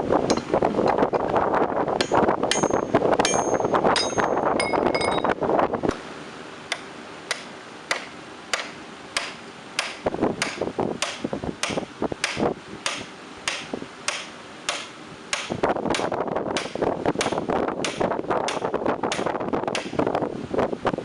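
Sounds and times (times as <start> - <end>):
hammer striking steel on anvil: 0.3 - 0.5, 2.0 - 5.3, 6.7 - 20.0.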